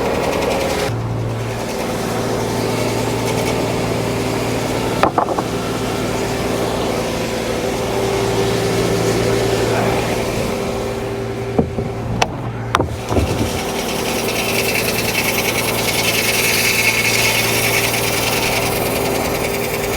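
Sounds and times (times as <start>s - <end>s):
sawmill running: 0.0s - 19.9s
sharp knock: 5.0s - 5.5s.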